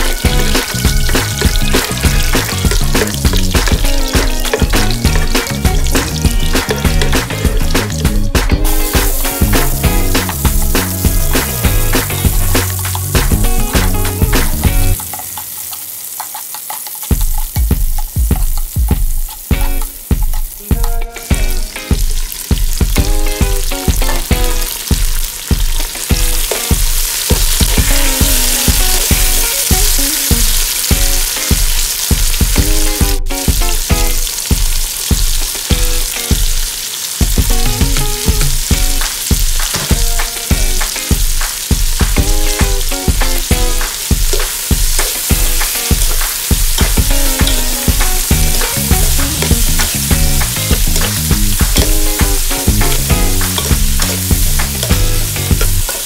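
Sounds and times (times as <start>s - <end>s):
background music with beat: 0.0s - 56.0s
vegetables sizzling in oil: 0.0s - 56.0s
metal spoon stirring in wok: 15.0s - 20.6s, 44.3s - 56.0s.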